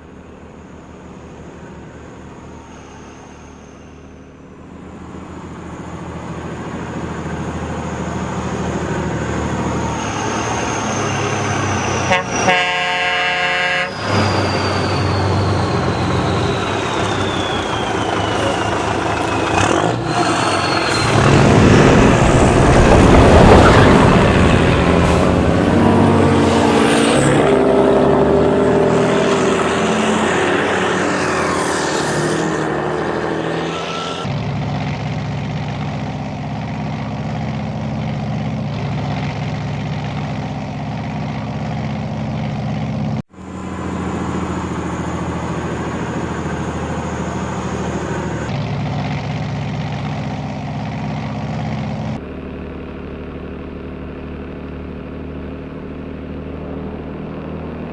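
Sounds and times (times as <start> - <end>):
heavy truck engine running: 13.9 - 28.3, 34.3 - 57.9.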